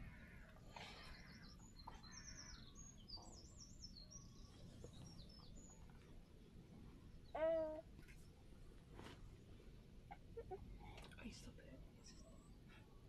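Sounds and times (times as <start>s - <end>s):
small bird chirping: 0.9s - 6.0s.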